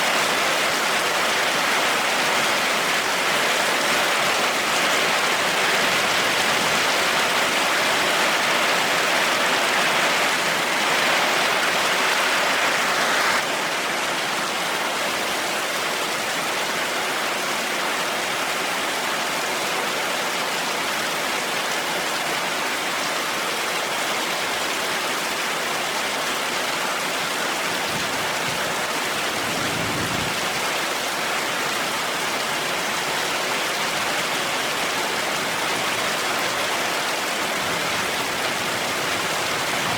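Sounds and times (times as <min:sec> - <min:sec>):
heavy rain hissing: 0:00.0 - 0:13.5.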